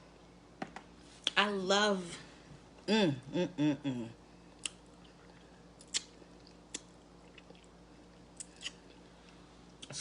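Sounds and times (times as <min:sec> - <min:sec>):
wet eating smacks and clicks: 0:04.6 - 0:07.7.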